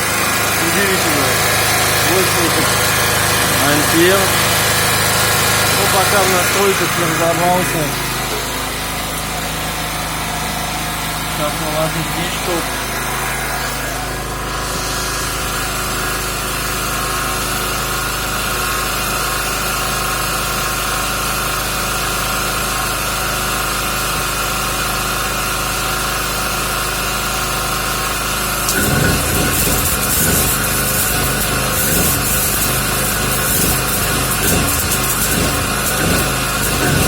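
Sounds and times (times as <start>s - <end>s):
welding arc crackling: 0.0s - 16.3s, 28.3s - 37.0s
generator running: 0.0s - 37.0s.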